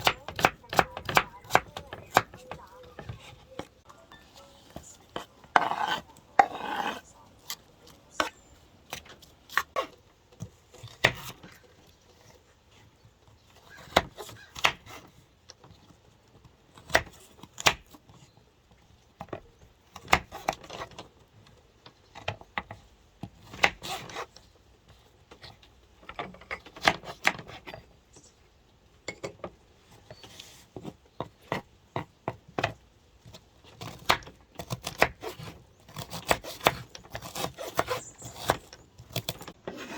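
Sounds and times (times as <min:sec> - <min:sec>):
knife cutting on wooden board: 0:05.1 - 0:10.0, 0:33.3 - 0:39.9.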